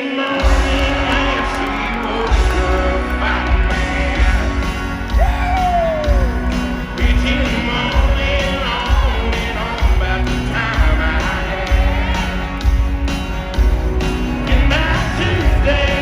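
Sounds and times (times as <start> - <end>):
crowd yelling: 0.0 - 9.7
person singing: 0.0 - 12.8, 14.4 - 16.0
live country band playing: 0.0 - 16.0
steady drum beat: 0.3 - 16.0.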